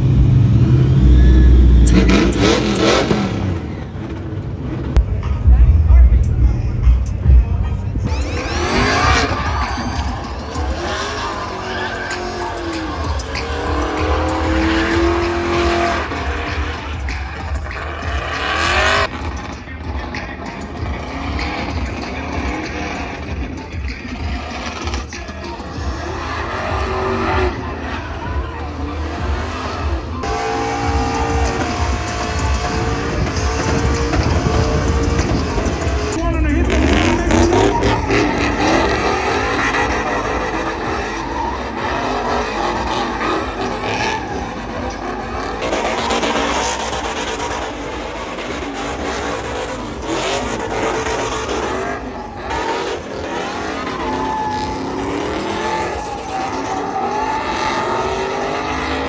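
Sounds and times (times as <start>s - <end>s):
tires squealing and skidding: 0.0s - 5.6s, 6.4s - 59.0s
vehicle engine revving: 0.0s - 59.0s
steady low rumble: 4.7s - 10.7s.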